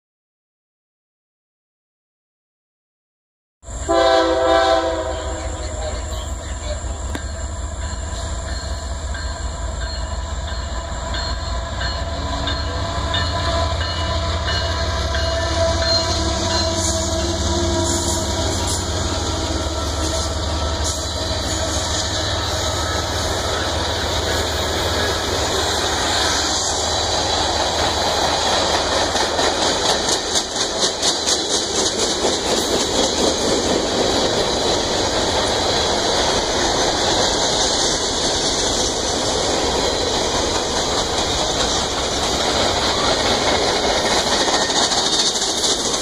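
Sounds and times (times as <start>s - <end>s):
train rumbling on rails: 3.6s - 46.0s
train air horn: 3.8s - 6.4s, 11.6s - 26.6s.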